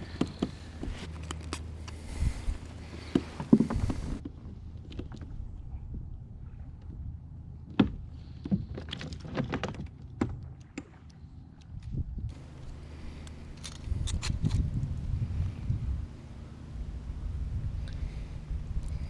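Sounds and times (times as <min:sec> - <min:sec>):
low steady rumble: 0:00.0 - 0:09.3, 0:09.9 - 0:19.0.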